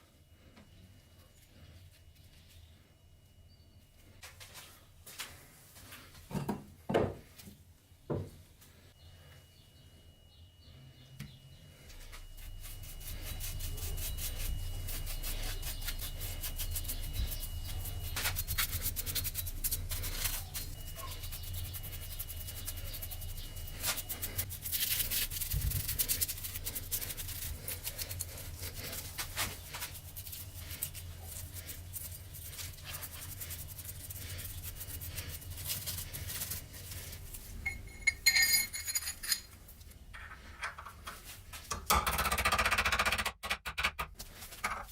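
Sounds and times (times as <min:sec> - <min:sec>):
low steady hum: 0:00.0 - 0:42.0
rapid rubbing and scraping: 0:12.2 - 0:39.5
short ringing clinks: 0:37.6 - 0:39.6.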